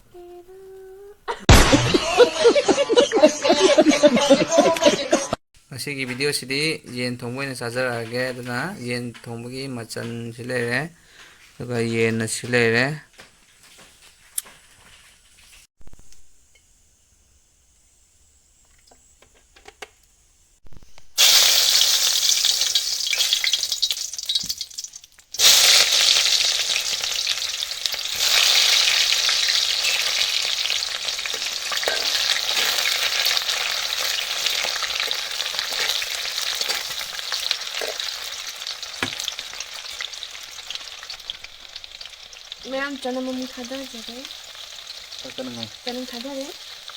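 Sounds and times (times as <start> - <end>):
food sizzling in hot oil: 20.8 - 46.9.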